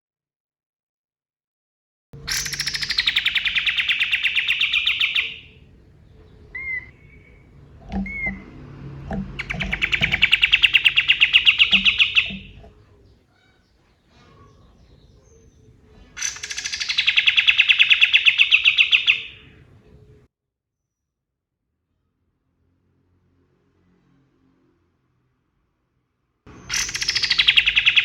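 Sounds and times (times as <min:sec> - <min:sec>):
bird call notes: 0:02.2 - 0:20.2, 0:26.5 - 0:28.0
bird trilling: 0:02.2 - 0:20.2, 0:26.5 - 0:28.0.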